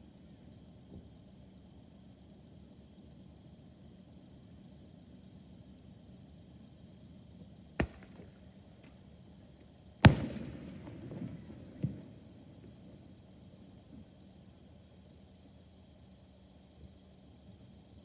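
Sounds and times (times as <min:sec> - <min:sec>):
insects chirring: 0:06.4 - 0:18.0
firework crackling: 0:07.8 - 0:08.4, 0:10.1 - 0:13.0
firework bangs: 0:07.8 - 0:08.9, 0:10.1 - 0:13.1.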